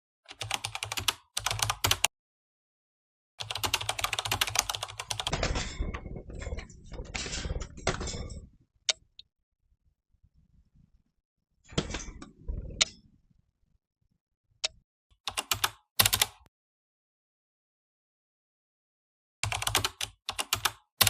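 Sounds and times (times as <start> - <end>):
keyboard typing: 0.3 - 2.1, 3.4 - 5.3, 14.6 - 16.5, 19.4 - 20.9.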